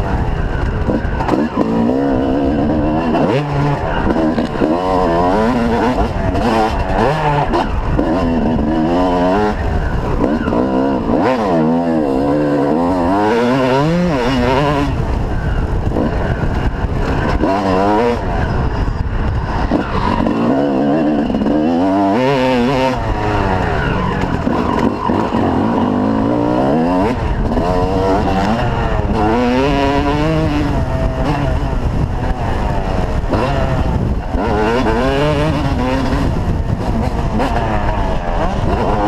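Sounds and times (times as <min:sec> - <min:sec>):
dirt bike engines revving: 0:00.0 - 0:39.0.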